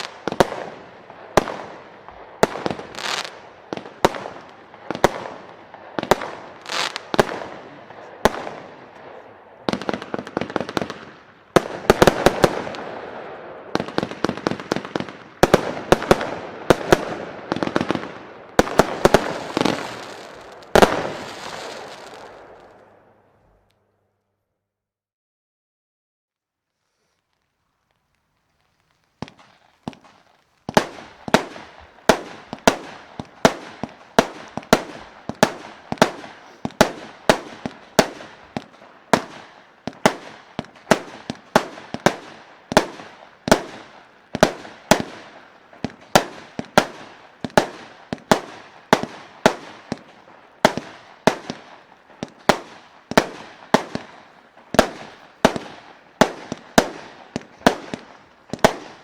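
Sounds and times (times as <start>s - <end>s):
firework shots banging: 29.2s - 59.0s.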